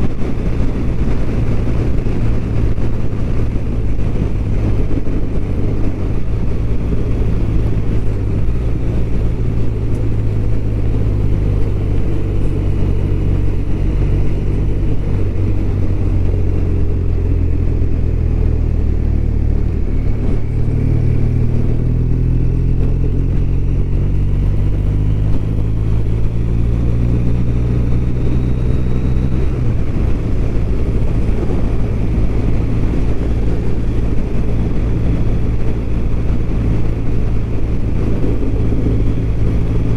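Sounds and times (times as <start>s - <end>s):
motorcycle engine running: 0.0s - 39.9s
riding wind rush: 0.0s - 39.9s.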